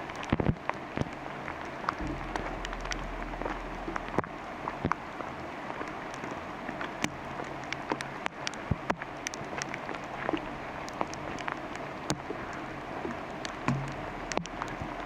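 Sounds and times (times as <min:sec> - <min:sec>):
steady rain in forest: 0:00.0 - 0:15.0
heavy drops tapping: 0:02.0 - 0:05.2, 0:13.7 - 0:14.1.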